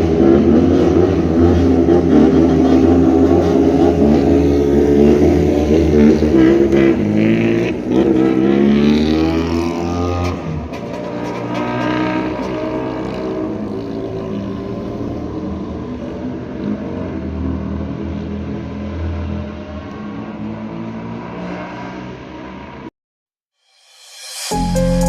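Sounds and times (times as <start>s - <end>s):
motorcycle engine accelerating: 0.0s - 17.3s.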